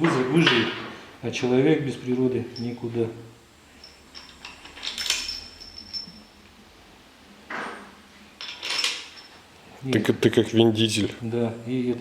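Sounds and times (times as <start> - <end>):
metallic clinks of tools: 2.5 - 2.9, 3.8 - 6.4, 8.4 - 9.4.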